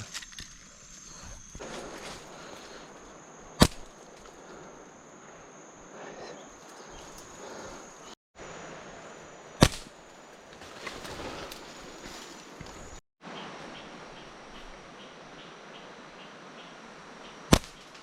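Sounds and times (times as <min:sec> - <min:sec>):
high insect drone: 0:00.0 - 0:13.0
slingshot shot cracks: 0:03.6 - 0:04.0, 0:09.6 - 0:10.0, 0:17.5 - 0:17.9.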